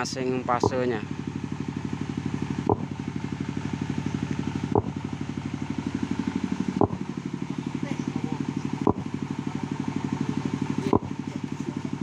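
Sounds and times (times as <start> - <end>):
diesel generator chugging: 0.0 - 12.0
sharp test pulse clicks: 0.6 - 1.0, 2.5 - 3.1, 4.1 - 5.1, 6.6 - 7.2, 8.8 - 9.2, 10.8 - 11.2.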